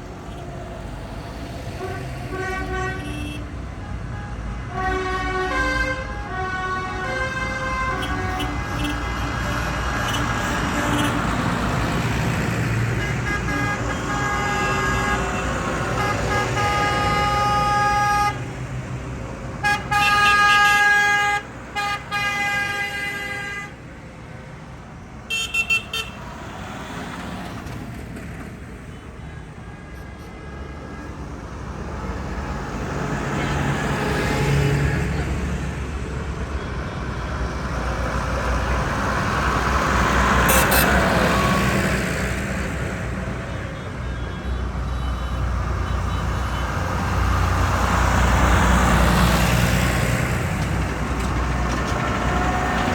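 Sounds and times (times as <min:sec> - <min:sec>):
tractor engines rumbling: 0:00.0 - 0:52.9
tractor horns tooting: 0:01.8 - 0:11.5, 0:12.9 - 0:18.5, 0:19.6 - 0:23.8, 0:25.3 - 0:26.4, 0:40.0 - 0:42.0, 0:43.4 - 0:48.5.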